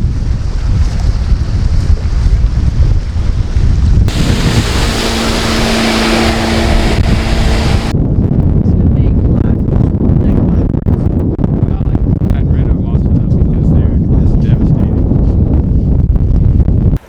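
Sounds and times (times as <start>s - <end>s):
wind buffeting microphone: 0.0s - 17.0s
loud hiss: 4.1s - 7.9s
outboard motor hum: 4.1s - 8.0s.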